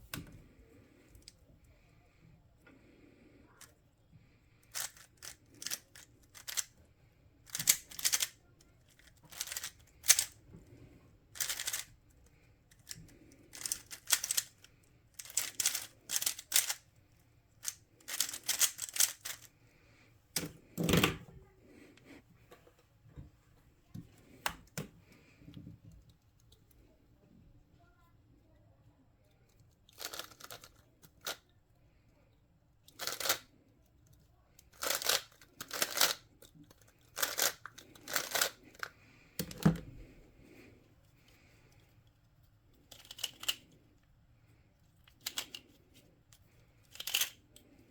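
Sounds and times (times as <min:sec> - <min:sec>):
puzzle cube clicking and rattling: 0:04.6 - 0:06.8, 0:07.4 - 0:10.4, 0:11.4 - 0:11.9, 0:12.7 - 0:16.9, 0:17.6 - 0:19.5, 0:29.9 - 0:31.4, 0:32.9 - 0:33.5, 0:34.6 - 0:40.1, 0:42.8 - 0:43.8, 0:45.1 - 0:46.0, 0:46.8 - 0:47.6.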